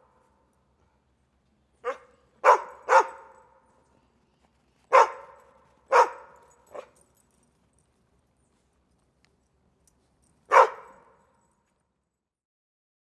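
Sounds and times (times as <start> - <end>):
dog barking with echo: 1.8 - 3.3, 4.9 - 6.9, 10.5 - 11.0.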